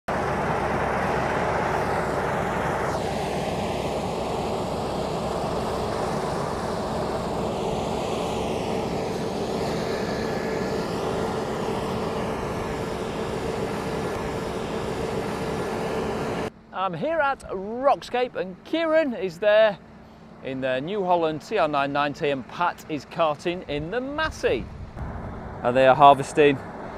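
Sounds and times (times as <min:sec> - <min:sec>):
broad rushing noise: 0:00.1 - 0:16.5
combine harvester engine drone: 0:00.1 - 0:26.9.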